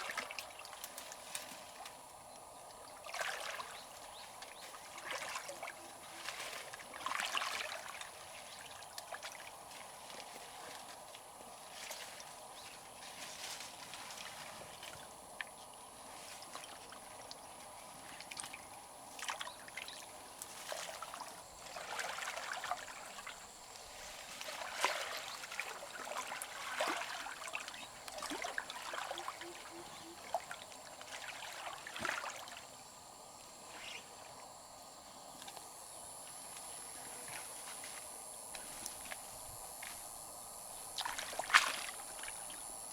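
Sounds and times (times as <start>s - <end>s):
river water trickling: 0.0s - 42.9s
water splashes: 2.8s - 32.8s, 40.8s - 42.8s.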